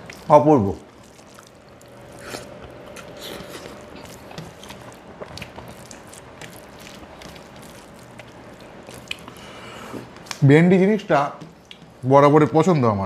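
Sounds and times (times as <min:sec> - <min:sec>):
fingers mixing rice on steel plate: 0:00.0 - 0:10.4
person chewing with wet smacks: 0:00.0 - 0:10.4, 0:11.2 - 0:12.0
faint steady hum: 0:00.0 - 0:13.0.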